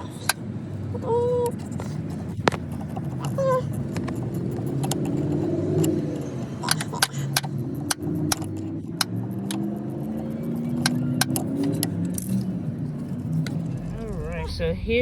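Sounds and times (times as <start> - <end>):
low engine hum: 0.0 - 15.0
metallic clicks of hand tools: 4.8 - 12.5.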